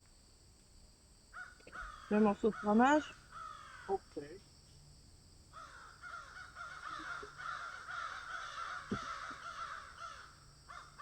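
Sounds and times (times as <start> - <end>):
flock of birds calling: 5.6 - 11.0.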